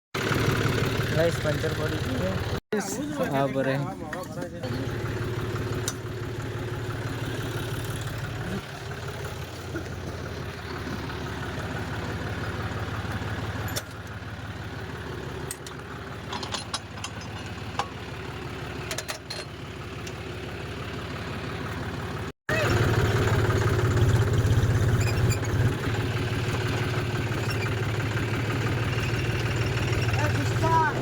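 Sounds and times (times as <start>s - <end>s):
tractor engine idling: 0.2s - 31.0s
sharp clicks and knocks: 15.4s - 18.0s.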